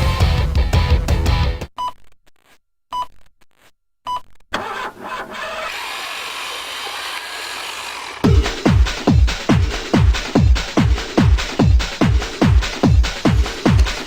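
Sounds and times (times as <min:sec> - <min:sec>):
techno beat with kick drums: 0:08.2 - 0:14.0.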